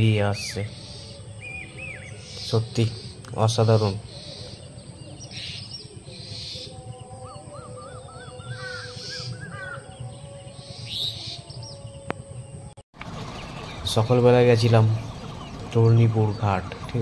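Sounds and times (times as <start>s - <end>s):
bird singing rising and falling notes: 0.0s - 17.0s
birds calling: 0.0s - 17.0s.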